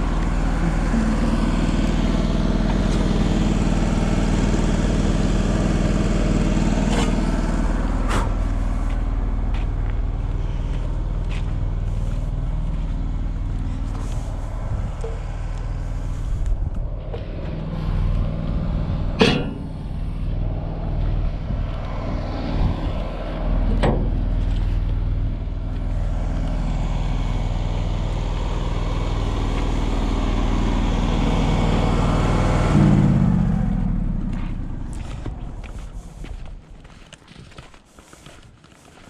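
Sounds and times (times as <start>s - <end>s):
sharp metallic knocks: 19.2s - 20.0s.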